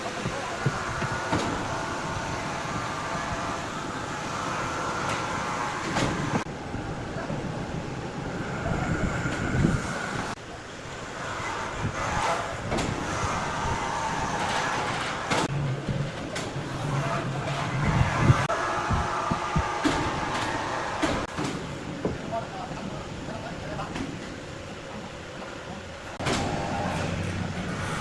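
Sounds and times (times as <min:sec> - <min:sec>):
sawmill machinery rumbling: 0:00.0 - 0:28.0.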